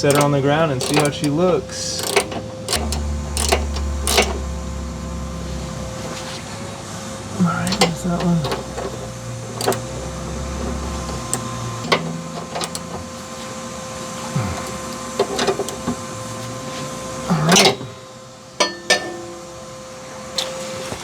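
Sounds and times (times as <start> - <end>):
hand tools clicking on metal: 0.0 - 4.4, 7.6 - 9.9, 10.7 - 13.1
metal clanks: 0.0 - 6.3, 7.6 - 13.1, 18.6 - 19.4
steady background hum: 0.0 - 21.0.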